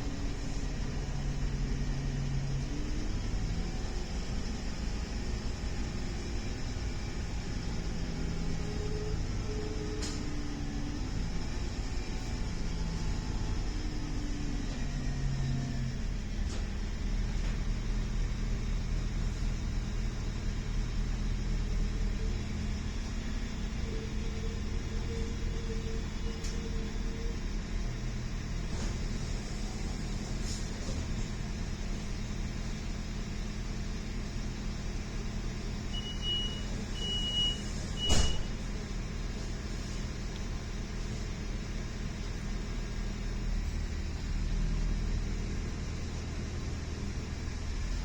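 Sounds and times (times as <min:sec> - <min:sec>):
train rumble and hum: 0:00.0 - 0:35.7
loud thump: 0:38.0 - 0:38.6.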